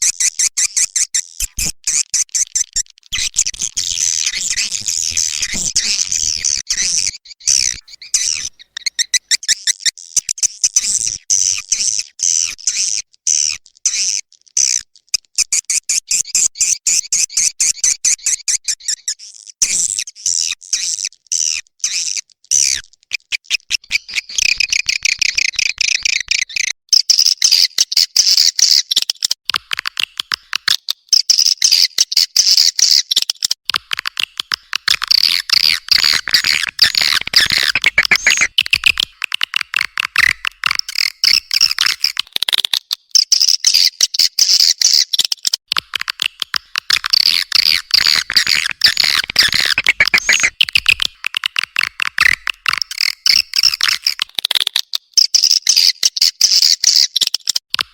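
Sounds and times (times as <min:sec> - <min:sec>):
swiftlets twittering: 0:02.4 - 0:09.5, 0:35.1 - 0:39.0, 0:46.8 - 0:54.1.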